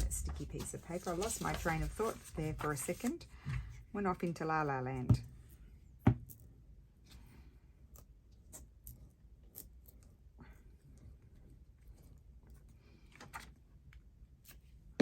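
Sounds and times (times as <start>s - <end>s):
light ticks and paper rustles: 0.0s - 3.3s.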